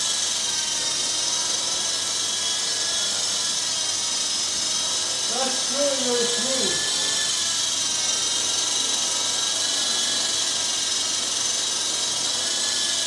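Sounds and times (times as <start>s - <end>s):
toy helicopter rotors whining: 0.0s - 13.0s.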